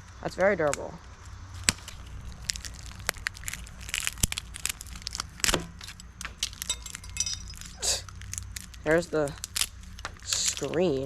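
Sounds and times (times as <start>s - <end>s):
electronic casing cracking and crunching: 1.6s - 8.8s.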